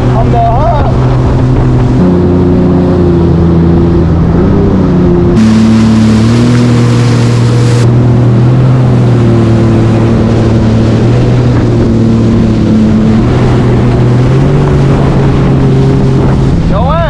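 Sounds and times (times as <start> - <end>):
jet ski engine at high revs: 0.0 - 17.0
loud rushing hiss: 5.4 - 7.9.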